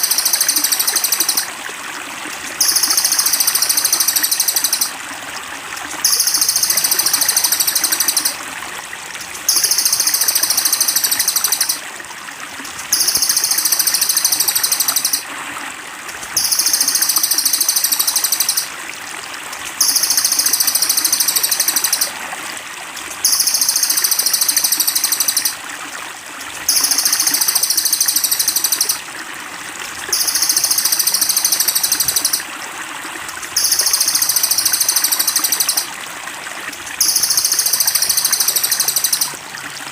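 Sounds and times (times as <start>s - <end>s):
bird high rapid trill: 0.0s - 1.5s, 2.6s - 4.9s, 6.0s - 8.4s, 9.5s - 11.8s, 12.9s - 15.2s, 16.4s - 18.7s, 19.8s - 22.1s, 23.2s - 25.6s, 26.7s - 29.0s, 30.1s - 32.4s, 33.6s - 35.9s, 37.0s - 39.4s
trickling water: 0.0s - 39.9s.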